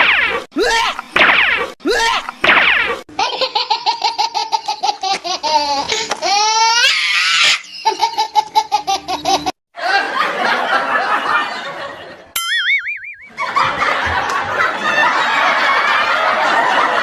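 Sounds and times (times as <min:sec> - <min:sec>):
high-pitched laughter: 0:03.2 - 0:10.2
warbling tone: 0:12.4 - 0:13.4.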